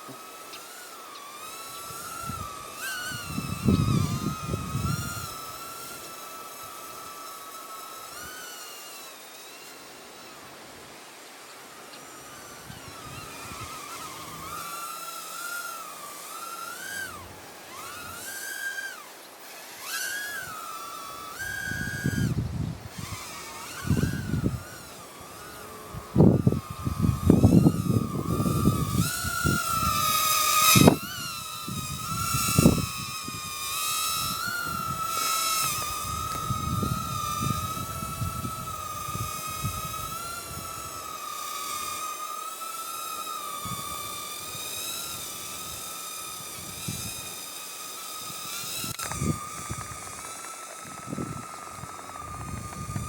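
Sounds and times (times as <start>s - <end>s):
small drone motors whining: 0.0s - 53.0s
wind buffeting microphone: 1.9s - 5.6s, 21.4s - 41.0s, 48.6s - 53.0s.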